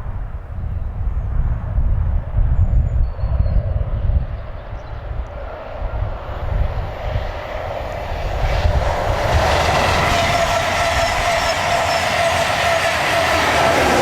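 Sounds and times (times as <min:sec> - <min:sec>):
train running drone: 0:03.9 - 0:14.0
high whine: 0:08.3 - 0:14.0.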